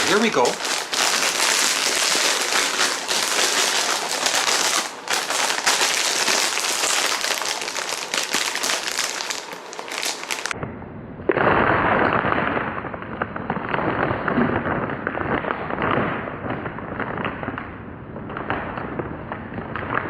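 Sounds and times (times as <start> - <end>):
crunching and chewing cheese puffs: 0.0 - 10.5.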